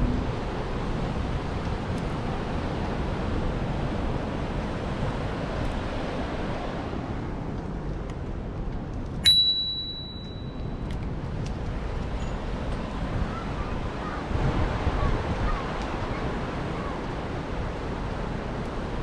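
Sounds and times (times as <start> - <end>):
bicycle rolling noise: 0.0 - 19.0
wind on microphone: 0.0 - 19.0
bicycle bell ding: 9.2 - 10.8.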